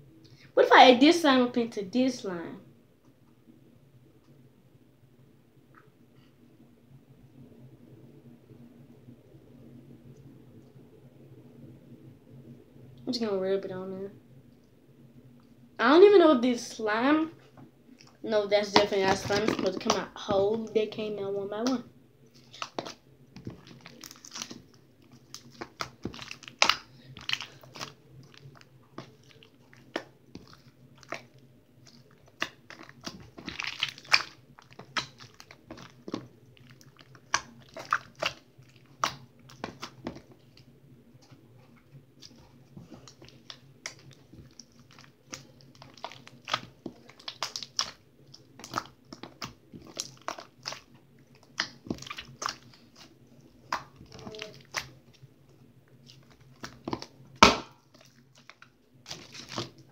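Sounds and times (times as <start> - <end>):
slime squished by hand: 22.4 - 40.6, 42.2 - 55.3, 56.0 - 59.9.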